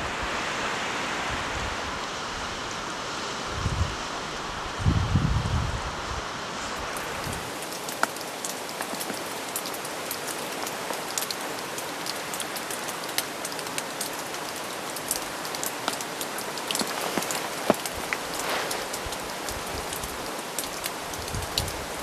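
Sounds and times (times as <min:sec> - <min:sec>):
steady rain falling: 0:00.0 - 0:22.0
raindrops ticking: 0:07.0 - 0:22.0.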